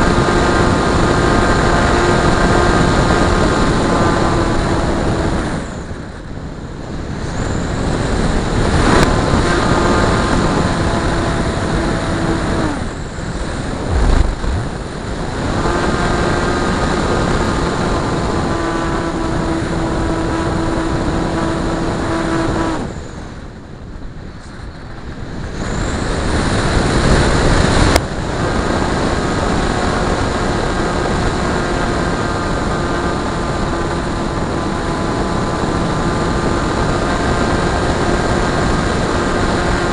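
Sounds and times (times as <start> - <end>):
model plane motor whining: 0.0 - 6.2, 6.9 - 23.2, 25.7 - 39.9.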